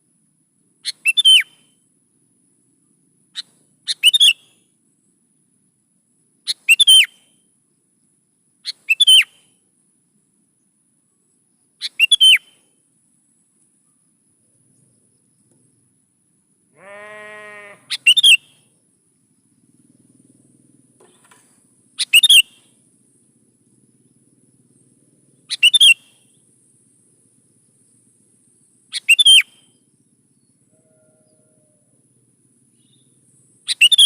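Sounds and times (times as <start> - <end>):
low bleat-like sound: 16.7 - 17.9, 30.7 - 31.9
bulbul short sharp calls: 16.8 - 18.7, 21.0 - 22.8, 25.5 - 26.4, 28.9 - 29.8.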